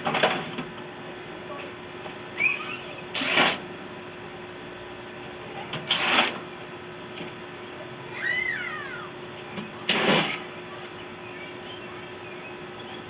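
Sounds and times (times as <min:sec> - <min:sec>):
birds chirping: 0:10.5 - 0:13.0.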